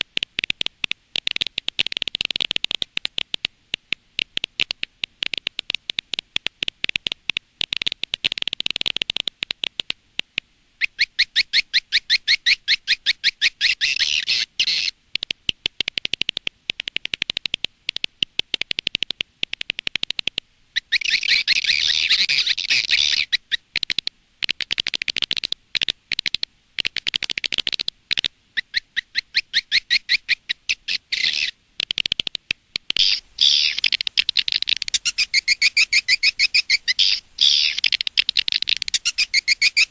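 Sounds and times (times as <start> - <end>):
swiftlet chirping calls: 20.8 - 23.4, 33.0 - 39.9.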